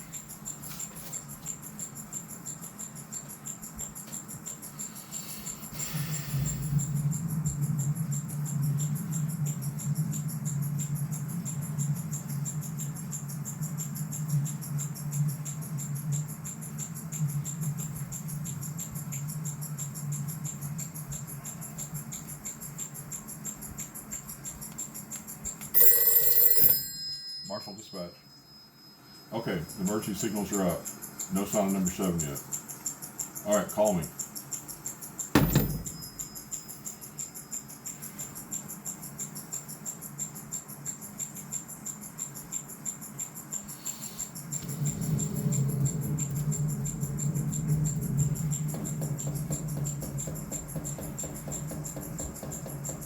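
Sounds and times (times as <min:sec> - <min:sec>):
telephone handset clunk: 0:35.4 - 0:36.2
faint brief ringing: 0:35.4 - 0:36.4.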